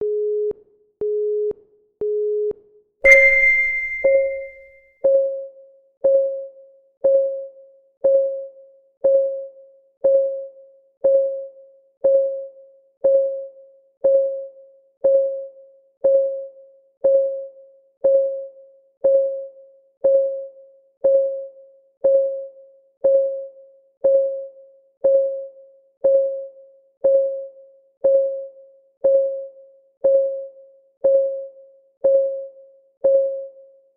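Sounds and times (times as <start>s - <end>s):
bright ringing ding: 3.1s - 4.6s
short timer beeps: 3.1s - 4.6s.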